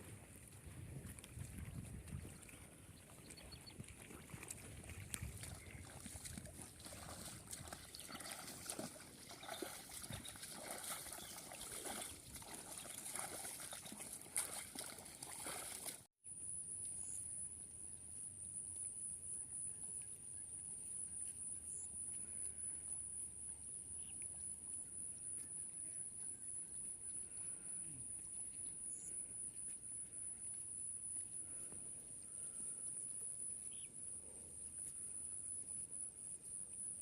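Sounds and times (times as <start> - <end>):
water sloshing and trickling: 0.0 - 16.1
small splashes and clicks: 0.4 - 16.1.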